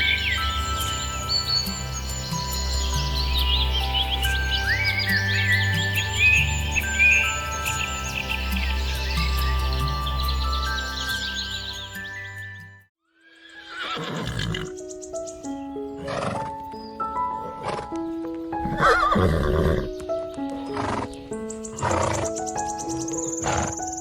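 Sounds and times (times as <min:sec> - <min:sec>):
background music: 0:00.0 - 0:24.0
horse whinnying: 0:13.6 - 0:14.8, 0:16.0 - 0:16.5, 0:18.6 - 0:19.9
horse noises: 0:16.0 - 0:16.7, 0:21.8 - 0:22.4.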